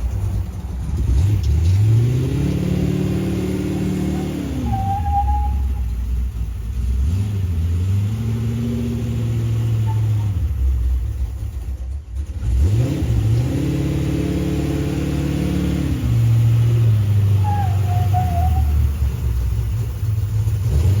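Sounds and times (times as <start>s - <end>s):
truck engine revving: 0.0s - 21.0s
wavering whistle-like tone: 3.6s - 5.9s, 9.8s - 10.4s, 17.4s - 18.9s.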